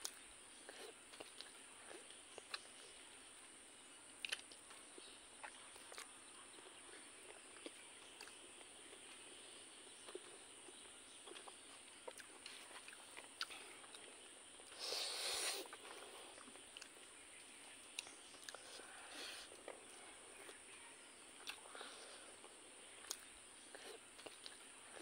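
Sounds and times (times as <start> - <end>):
chewing clicks and smacks: 0.0 - 3.0, 4.2 - 9.2, 10.0 - 14.8, 15.7 - 17.1, 17.8 - 18.8, 21.4 - 21.7, 23.0 - 25.0
steady high hiss: 12.6 - 20.2.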